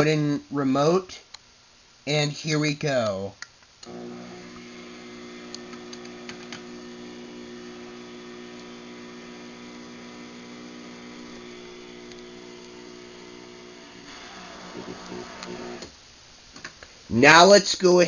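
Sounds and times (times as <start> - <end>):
garage door opener motor humming: 3.9 - 15.9
clicks: 11.2 - 13.0, 14.8 - 15.9.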